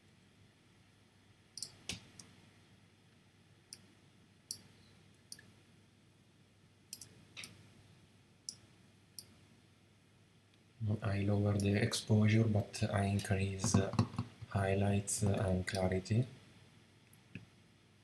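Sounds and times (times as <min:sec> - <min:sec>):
faint low hum: 0:00.0 - 0:18.0
computer mouse clicking: 0:01.6 - 0:02.3.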